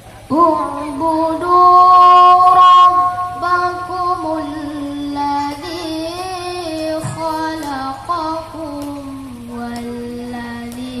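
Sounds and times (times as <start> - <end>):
person reciting in melodic chant: 0.0 - 11.0.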